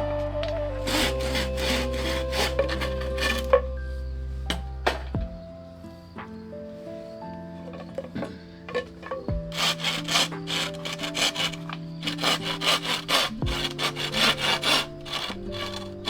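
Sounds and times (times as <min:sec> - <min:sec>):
background music with held notes: 0:00.0 - 0:16.0
hand saw cutting wood: 0:00.9 - 0:03.7, 0:08.7 - 0:16.0.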